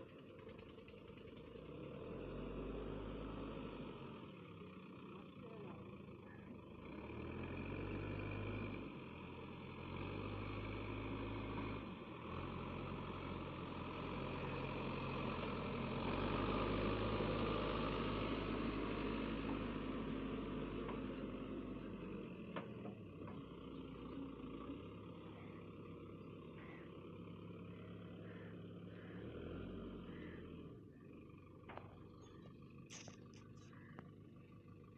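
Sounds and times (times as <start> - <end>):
heavy diesel engine revving: 0.0 - 5.0, 6.7 - 33.1.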